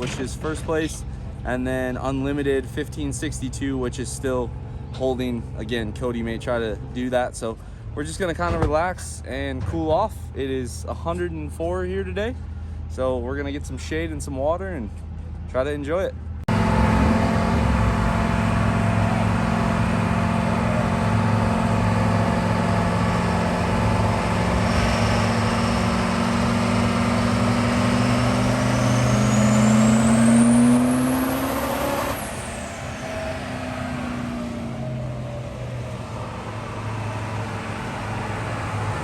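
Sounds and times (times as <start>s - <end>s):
diesel truck engine under load: 0.0s - 12.9s, 16.2s - 39.0s
turbo whine: 16.5s - 39.0s.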